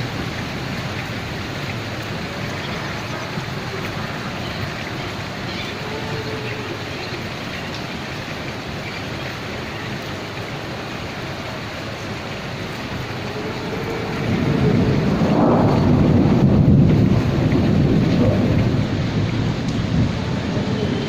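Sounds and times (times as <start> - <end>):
steady rain: 0.0 - 21.0
thunder rumbling: 12.3 - 21.0.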